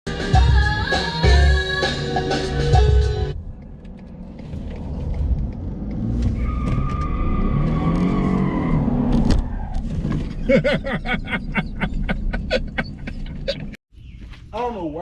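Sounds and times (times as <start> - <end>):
pickup engine revving: 3.4 - 9.6.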